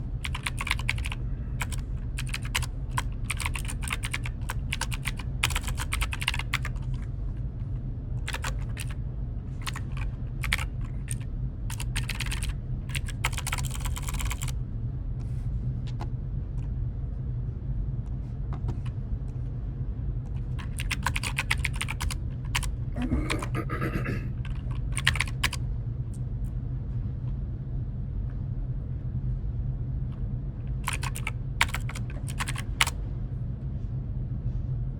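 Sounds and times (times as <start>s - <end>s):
steady low hum: 0.0s - 34.9s
computer keyboard typing: 0.2s - 7.0s, 8.2s - 9.0s, 9.6s - 14.5s, 20.3s - 23.6s, 24.4s - 25.6s, 30.8s - 33.0s.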